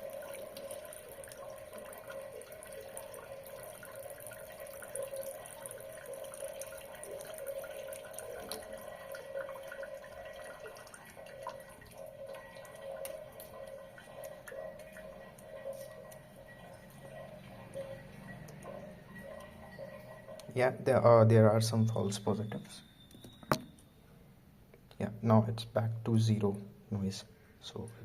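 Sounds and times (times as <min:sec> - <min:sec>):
tap running thin stream: 0:00.0 - 0:20.6
water dripping: 0:00.0 - 0:24.0.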